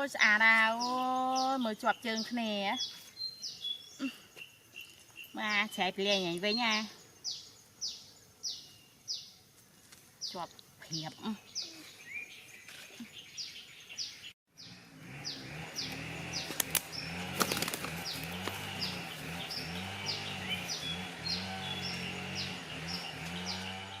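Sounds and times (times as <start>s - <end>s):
bird chirping: 0.2s - 9.5s, 10.2s - 24.0s
sharp clicks: 15.9s - 18.6s.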